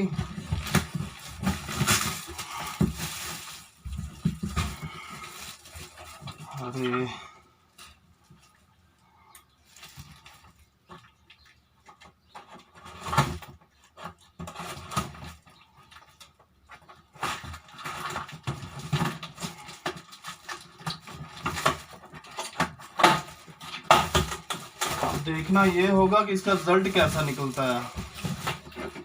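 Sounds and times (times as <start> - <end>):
plastic parts clicking and knocking: 11.9 - 29.0.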